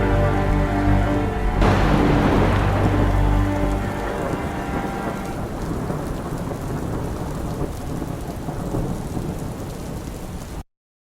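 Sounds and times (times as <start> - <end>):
low rumble: 0.0 - 6.4
steady rain: 0.0 - 10.7.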